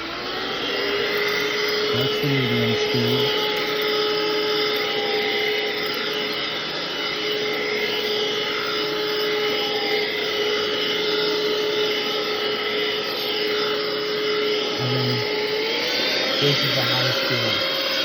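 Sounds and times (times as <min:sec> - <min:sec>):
stick vacuum running: 0:00.0 - 0:18.0.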